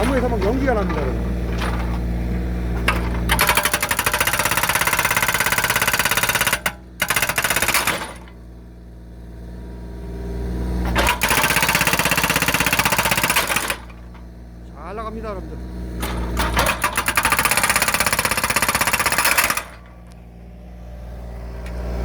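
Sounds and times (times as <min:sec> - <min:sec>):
excavator diesel engine running: 0:00.0 - 0:22.0
hydraulic breaker hammering log: 0:02.8 - 0:08.4, 0:10.9 - 0:14.2, 0:16.0 - 0:20.1.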